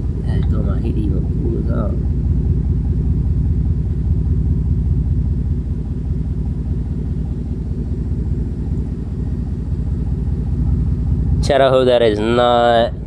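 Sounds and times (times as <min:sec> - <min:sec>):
vehicle engine deep rumble: 0:00.0 - 0:13.0.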